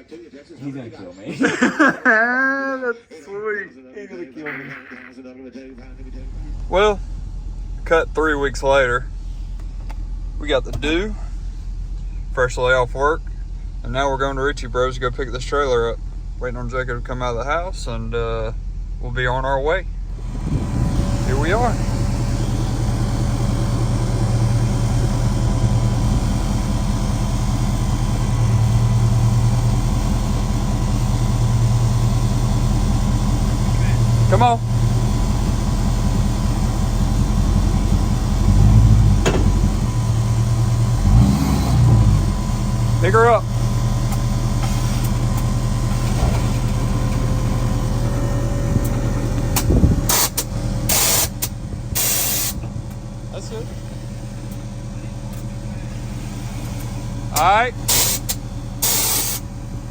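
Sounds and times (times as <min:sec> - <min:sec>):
pickup truck engine droning: 0:05.6 - 0:59.9
low rumble: 0:45.1 - 0:58.8
loud bursts of hiss: 0:50.1 - 0:52.6, 0:57.9 - 0:59.4.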